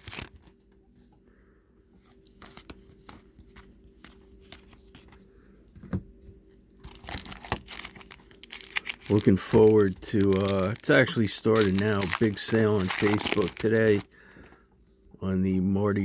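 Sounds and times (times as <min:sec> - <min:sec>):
faint steady hum: 0:00.0 - 0:16.0
trading cards tapping and rustling: 0:06.8 - 0:14.6.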